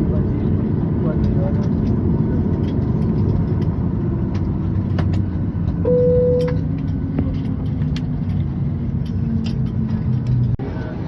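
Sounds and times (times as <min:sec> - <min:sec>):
aircraft cabin hum: 0:00.0 - 0:10.9
clicks and knocks of passengers: 0:00.0 - 0:10.9
short tone: 0:05.8 - 0:06.7.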